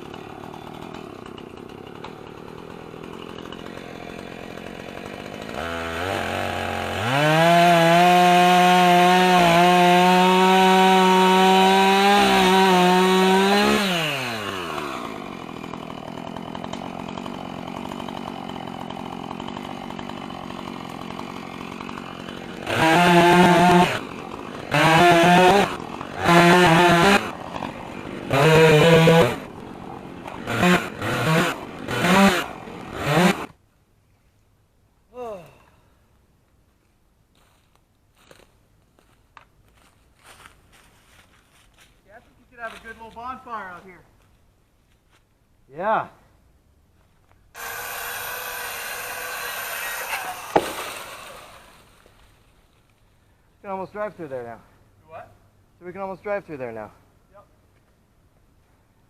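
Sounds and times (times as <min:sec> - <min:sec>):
chainsaw revving and idling: 0:00.0 - 0:33.6, 0:47.6 - 0:52.1.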